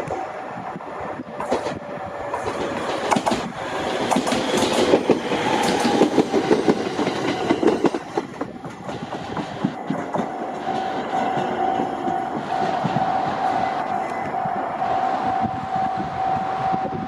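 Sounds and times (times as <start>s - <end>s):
train wheels clicking over joints: 0.0s - 15.4s
train rumble: 0.0s - 17.0s
steady high whine: 9.0s - 17.0s.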